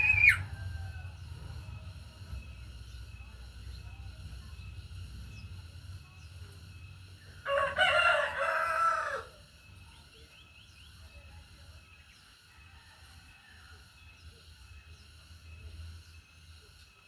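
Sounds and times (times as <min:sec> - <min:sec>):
faint rising bird chirps: 0:00.0 - 0:00.7
rooster crowing: 0:00.0 - 0:01.7, 0:07.4 - 0:09.4.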